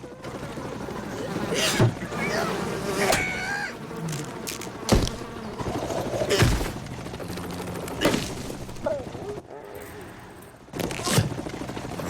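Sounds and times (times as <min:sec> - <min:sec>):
cartoon buzzing: 0:01.1 - 0:06.7.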